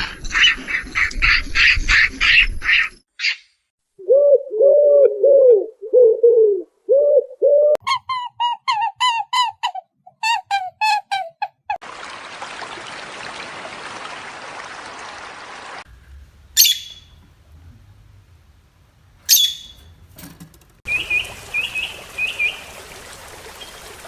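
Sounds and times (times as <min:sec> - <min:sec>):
steady hiss: 0:15.9 - 0:23.0
shrill bird squawks: 0:16.6 - 0:17.2, 0:19.3 - 0:19.9
high bird chirps: 0:16.6 - 0:17.3, 0:19.3 - 0:20.0.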